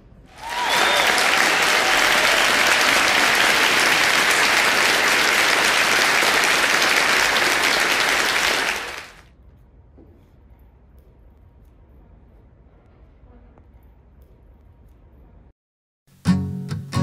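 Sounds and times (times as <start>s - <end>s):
crowd applauding: 0.3s - 9.3s.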